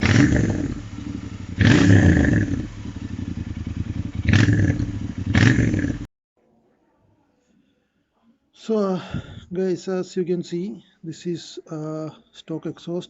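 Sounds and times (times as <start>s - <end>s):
motorcycle engine idling and revving: 0.0s - 6.1s.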